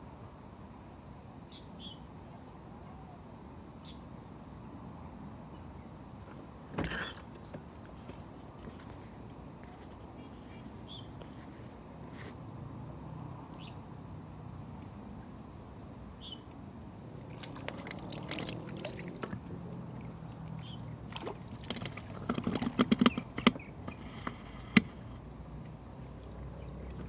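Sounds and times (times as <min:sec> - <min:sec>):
water splashing and sloshing: 0:17.0 - 0:24.0
sharp clicks and knocks: 0:21.7 - 0:25.0.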